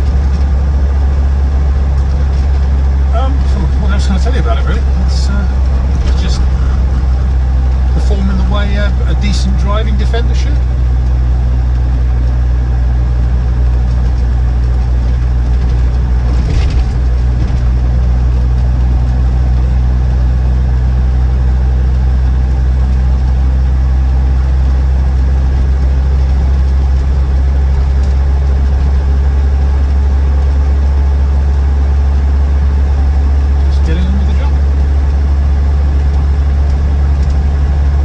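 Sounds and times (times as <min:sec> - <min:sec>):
diesel engine drone in cabin: 0:00.0 - 0:38.0
road noise: 0:00.0 - 0:38.0.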